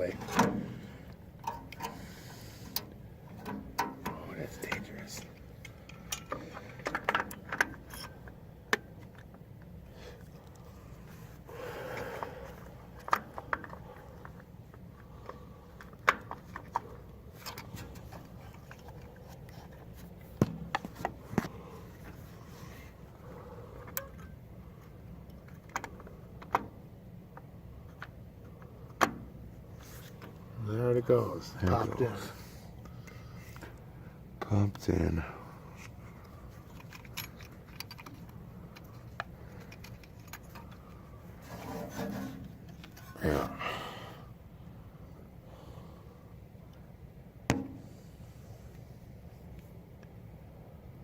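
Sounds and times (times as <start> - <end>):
faint low hum: 0.0 - 51.0
clicks of metal parts: 0.2 - 9.3, 23.8 - 29.3, 35.8 - 43.2
knocks of tools being handled: 20.4 - 22.2
metal parts and tools clinking: 36.6 - 40.8.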